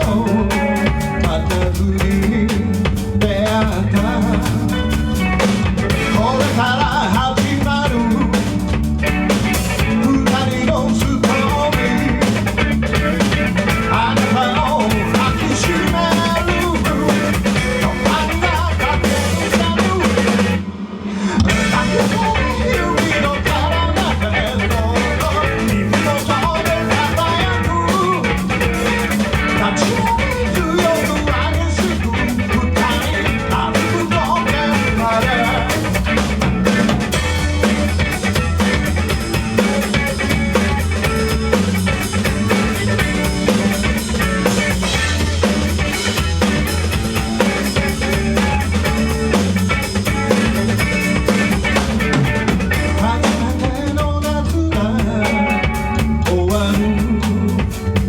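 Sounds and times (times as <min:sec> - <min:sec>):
bass line: 0:00.0 - 0:58.0
drum kit: 0:00.0 - 0:58.0
guitar: 0:00.0 - 0:58.0
live band playing: 0:00.0 - 0:58.0.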